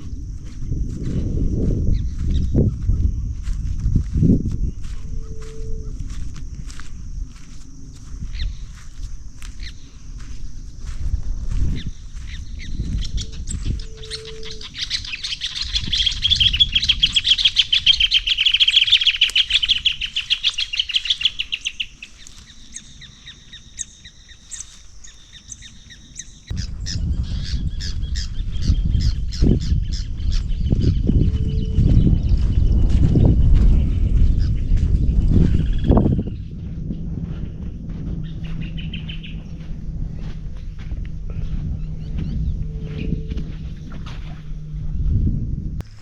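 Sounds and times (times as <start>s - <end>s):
footsteps: 0.0s - 14.5s, 31.0s - 46.0s
bird chirping: 11.7s - 33.3s, 38.2s - 44.7s.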